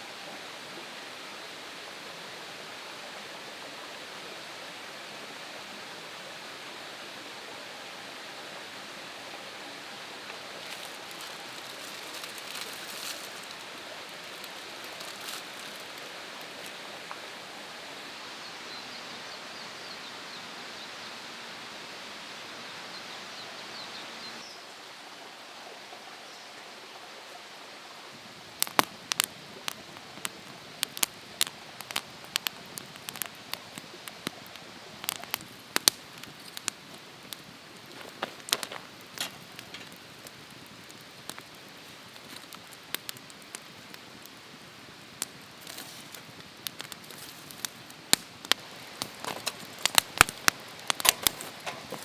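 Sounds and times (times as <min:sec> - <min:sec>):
outdoor background noise: 0:00.0 - 0:52.0
campfire crackling: 0:08.7 - 0:18.9, 0:28.0 - 0:52.0
sharp fire pops: 0:28.4 - 0:52.0.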